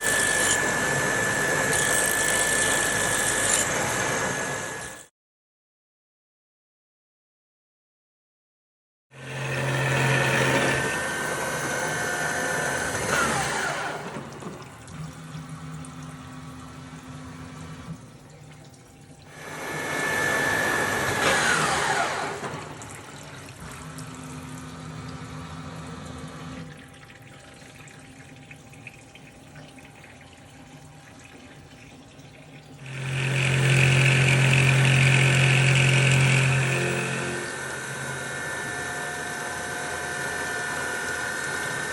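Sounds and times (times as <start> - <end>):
milling machine whining: 0.0 - 5.1, 9.2 - 18.0, 19.3 - 26.7, 32.7 - 41.9.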